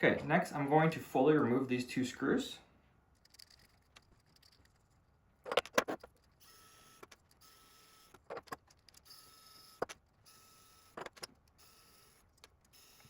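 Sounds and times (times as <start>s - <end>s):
tools and small parts clicking: 3.1s - 13.0s
small motor whirring: 5.6s - 13.0s.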